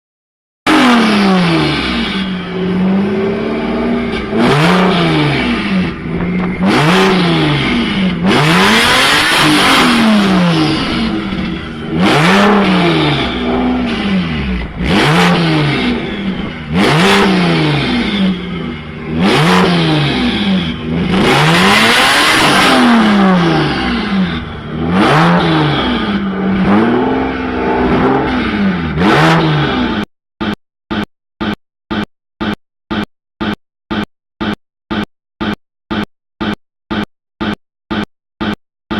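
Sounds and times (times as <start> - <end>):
car engines revving hard: 0.7 - 30.1
rasping exhaust rush: 0.7 - 30.1.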